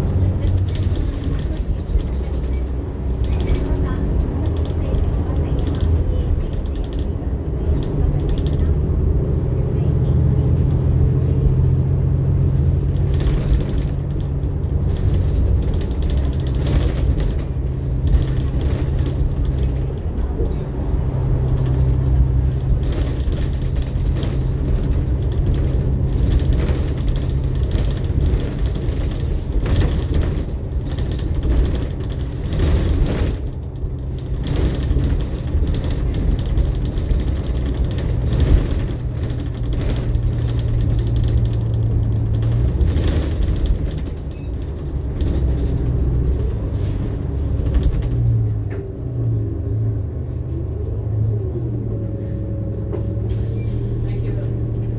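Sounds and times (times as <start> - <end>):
bus engine humming: 0.0 - 54.9
interior fittings rattling: 0.3 - 2.6, 12.8 - 20.2, 21.5 - 46.2.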